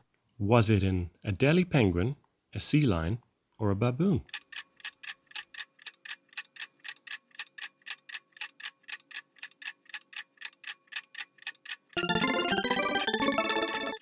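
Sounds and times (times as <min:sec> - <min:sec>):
clock-like ticking: 0:04.2 - 0:14.0.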